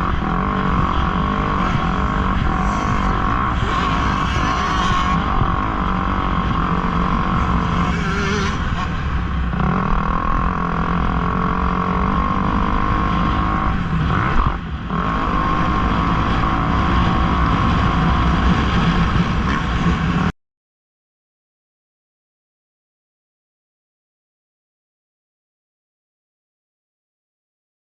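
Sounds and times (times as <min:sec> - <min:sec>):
dirt bike engines running: 0:00.0 - 0:20.3.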